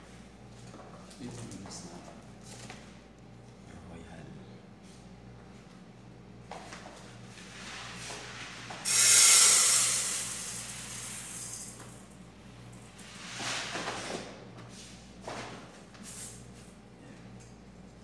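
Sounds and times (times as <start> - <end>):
rice pouring into metal pot: 8.8 - 11.7.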